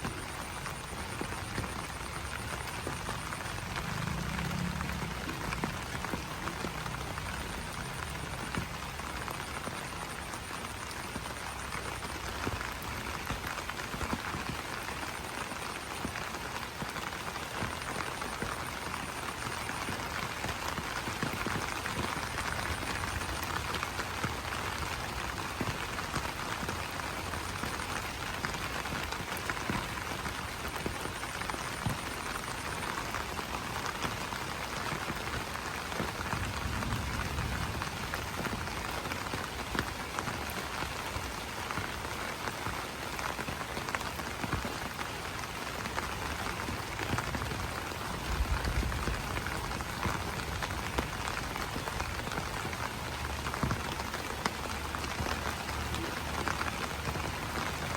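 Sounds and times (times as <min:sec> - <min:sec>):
rain pattering on leaves: 0:00.0 - 0:57.9.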